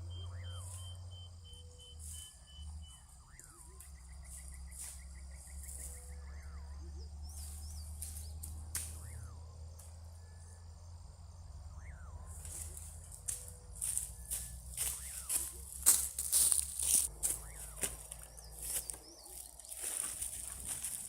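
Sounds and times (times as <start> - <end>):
fast pulsed trill: 0.0 - 21.0
insects droning: 0.0 - 21.0.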